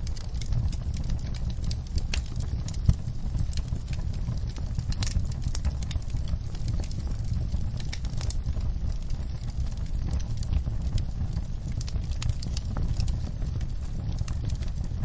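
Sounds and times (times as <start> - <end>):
fire crackling and popping: 0.0 - 15.0
fire low rumble: 0.0 - 15.0.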